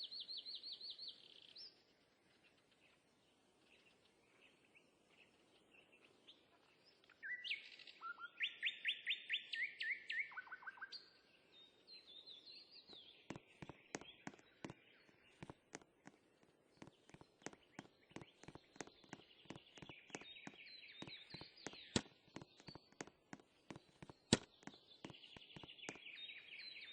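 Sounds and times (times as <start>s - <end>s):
sharp clicks or taps: 13.3s - 14.8s, 15.4s - 26.0s.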